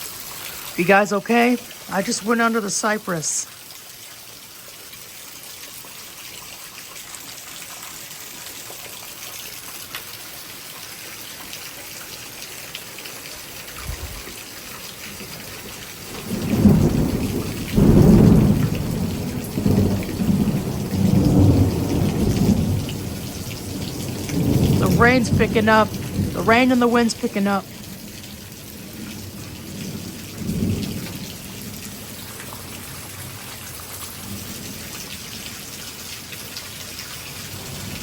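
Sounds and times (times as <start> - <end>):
heavy rain: 0.0 - 38.0
thunder rumbling: 16.0 - 28.0, 28.9 - 32.1.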